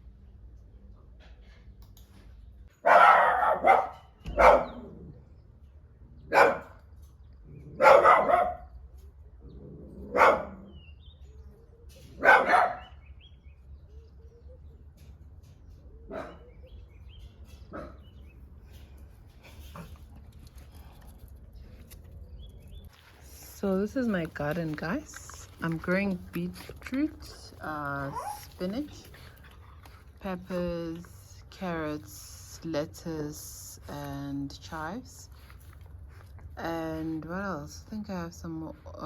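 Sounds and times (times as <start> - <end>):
dog barking: 2.8 - 4.9, 6.3 - 6.8, 7.8 - 8.7, 10.1 - 10.7, 12.2 - 13.0, 16.1 - 16.5.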